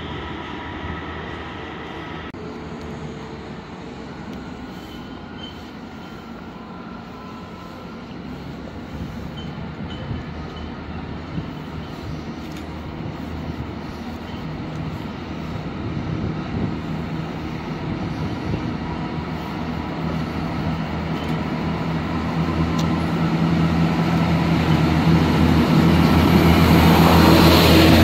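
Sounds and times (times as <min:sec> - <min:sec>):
train engine hum and wheel noise: 0:00.0 - 0:28.0.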